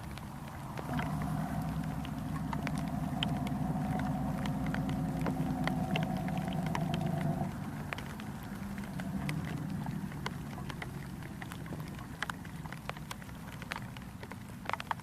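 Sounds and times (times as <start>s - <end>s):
engine-like hum: 0.0s - 15.0s
heavy rain pattering: 0.0s - 15.0s.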